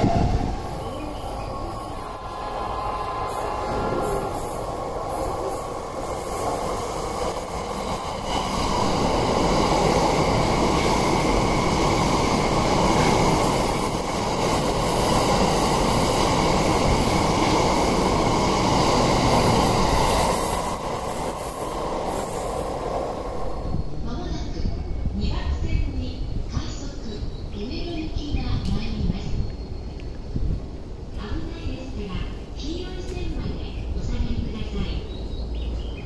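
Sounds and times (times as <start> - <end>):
train running past: 0.0 - 28.3.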